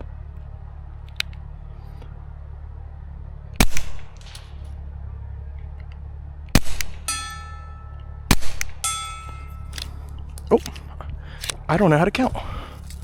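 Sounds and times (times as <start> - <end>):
suppressed pistol shots: 3.6 - 4.6, 6.5 - 7.4, 8.3 - 10.0.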